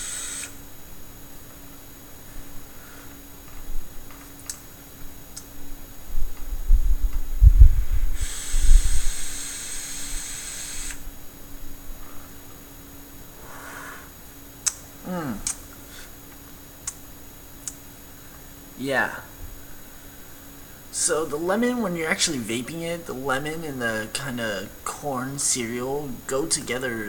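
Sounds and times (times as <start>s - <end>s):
vapor exhale hiss: 0.0s - 0.6s, 7.6s - 11.0s, 13.3s - 14.2s
room fan humming: 0.0s - 27.0s
light clicks: 5.3s - 5.5s, 14.6s - 15.6s
breath buffeting microphone: 6.2s - 9.4s, 13.3s - 14.2s.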